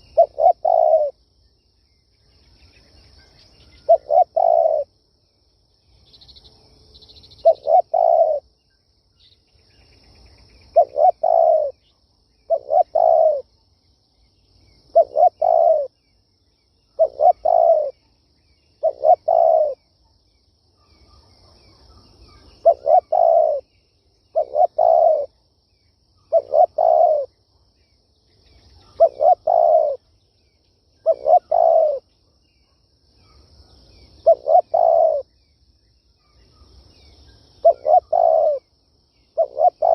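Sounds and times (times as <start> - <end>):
dove cooing: 0.0 - 1.2, 3.8 - 4.9, 7.4 - 8.4, 10.7 - 11.8, 12.5 - 13.5, 14.9 - 16.0, 17.0 - 18.0, 18.8 - 19.8, 22.6 - 23.7, 24.3 - 25.4, 26.3 - 27.3, 28.8 - 30.0, 31.0 - 32.1, 34.2 - 35.3, 37.6 - 38.7, 39.4 - 39.9.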